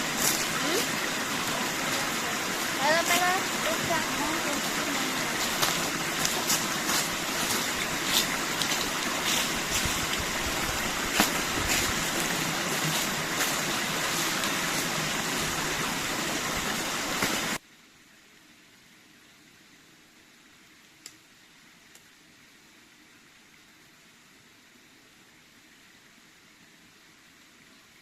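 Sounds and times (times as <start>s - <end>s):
stream water rushing: 0.0s - 17.6s
faint hiss: 0.0s - 28.0s
water clicks and splashes: 0.1s - 15.4s.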